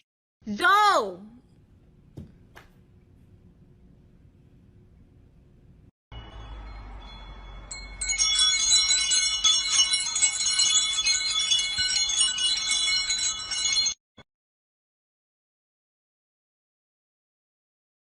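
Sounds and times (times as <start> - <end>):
metal chimes ringing: 6.1 - 14.0.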